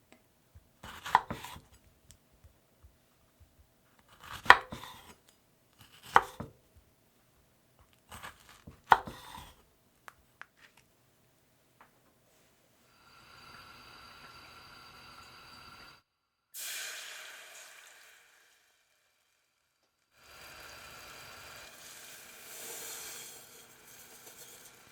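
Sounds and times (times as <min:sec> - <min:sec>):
knife chopping on cutting board: 0:00.8 - 0:01.8, 0:04.0 - 0:05.2, 0:05.8 - 0:06.6, 0:08.1 - 0:09.6
quiet hiss with faint whine: 0:06.6 - 0:16.1.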